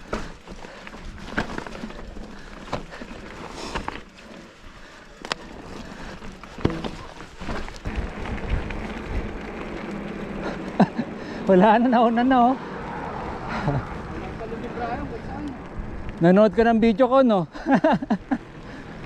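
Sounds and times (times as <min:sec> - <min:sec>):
bike knocks and rattles: 0:00.0 - 0:11.2
bike tyres rolling on dirt: 0:00.0 - 0:19.0.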